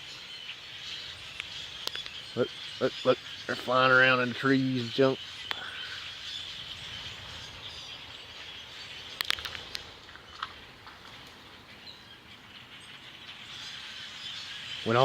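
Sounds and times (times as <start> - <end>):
sharp bird chirps: 0.0 - 10.6
distant flock of birds chattering: 0.0 - 15.0.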